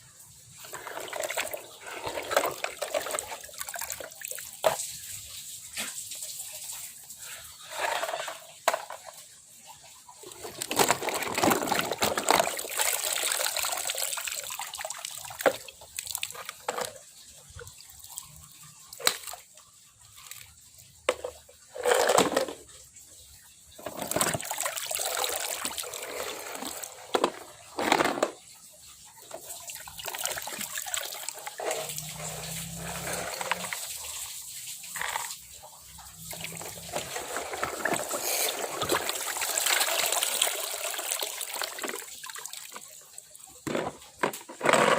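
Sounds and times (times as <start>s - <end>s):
water sloshing and splashing: 0.2s - 44.9s
plastic toys knocking: 7.8s - 9.1s, 10.4s - 12.6s, 21.1s - 22.7s, 26.5s - 28.4s, 36.2s - 39.2s, 43.6s - 44.9s.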